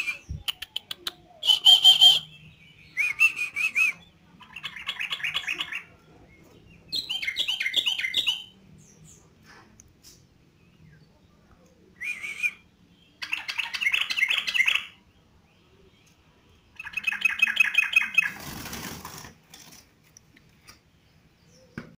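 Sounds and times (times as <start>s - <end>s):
bird singing chattering notes: 16.8s - 18.4s.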